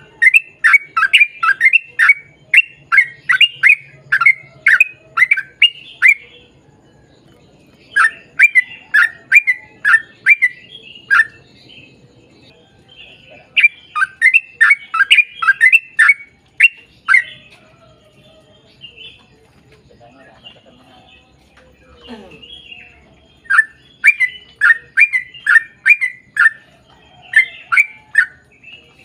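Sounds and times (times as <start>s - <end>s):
bulbul singing sharp chirps: 0.0s - 6.6s, 7.8s - 17.5s, 22.1s - 28.7s.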